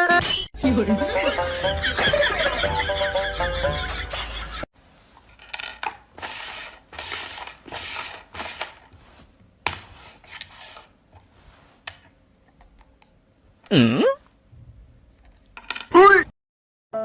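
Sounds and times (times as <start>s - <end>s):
scraping and rubbing: 4.8s - 12.1s.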